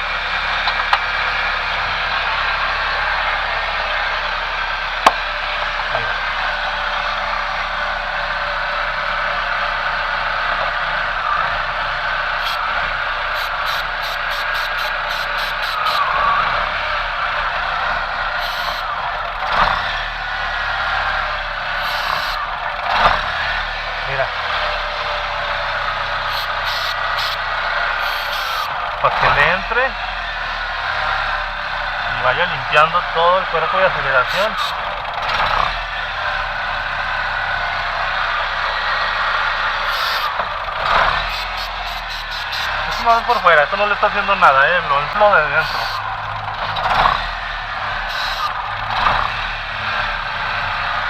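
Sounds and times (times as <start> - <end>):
faint low engine drone: 0.0 - 51.0
aerosol spray hissing into engine: 12.4 - 12.7, 13.3 - 16.1, 18.4 - 18.9, 21.8 - 22.4, 26.3 - 27.4, 28.0 - 28.7, 34.3 - 34.8, 39.9 - 40.3, 41.3 - 43.3, 45.6 - 46.0, 48.1 - 48.5.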